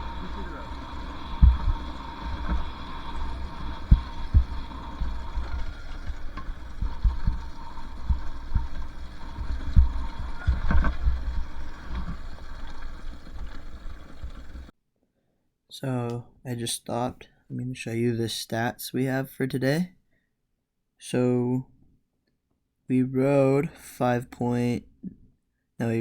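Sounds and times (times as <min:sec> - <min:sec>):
bike thumping over bumps: 0:00.0 - 0:14.7
dirt bike engine rumble: 0:00.0 - 0:14.7.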